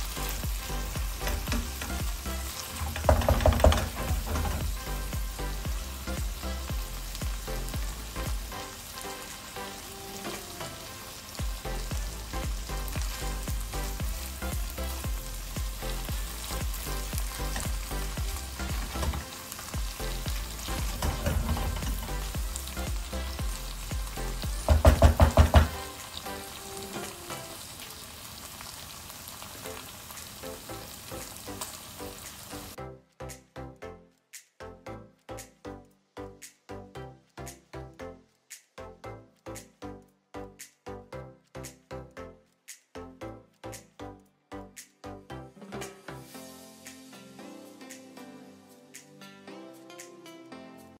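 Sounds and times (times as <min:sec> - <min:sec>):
chicken sizzling in a wok: 0:00.0 - 0:32.8, 0:45.6 - 0:48.6.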